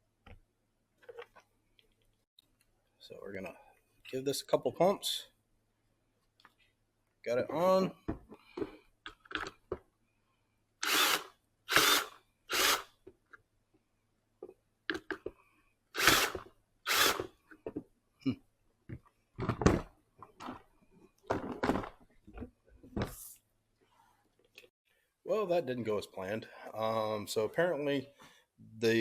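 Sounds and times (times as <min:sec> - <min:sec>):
cordless drill bursts: 0:10.8 - 0:13.0, 0:16.0 - 0:17.3.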